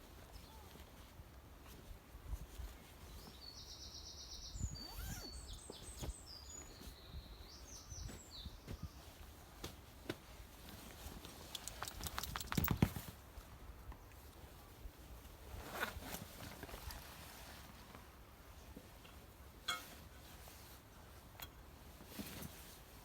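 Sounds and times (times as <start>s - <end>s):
songbird singing: 3.0s - 9.2s
handling knocks and rustles: 8.0s - 13.3s, 15.5s - 18.1s, 18.7s - 23.0s
quick clicks and knocks: 11.5s - 13.1s.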